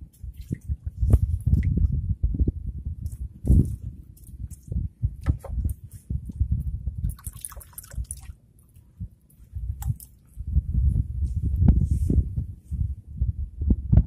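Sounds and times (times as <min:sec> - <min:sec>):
water splashes and drips: 0:00.0 - 0:01.9, 0:07.0 - 0:08.8, 0:09.8 - 0:10.3
low rumble: 0:00.0 - 0:07.2, 0:08.9 - 0:14.0.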